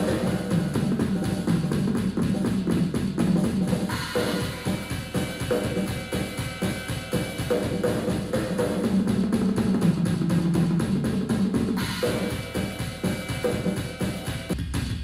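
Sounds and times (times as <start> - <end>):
fast drum strokes: 0.0 - 15.0
crash cymbal ringing: 3.9 - 8.5.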